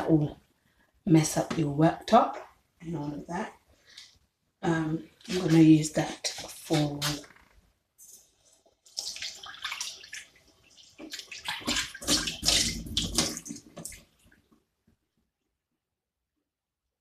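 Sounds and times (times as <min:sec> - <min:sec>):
water splashing in a sink: 0:04.8 - 0:14.6.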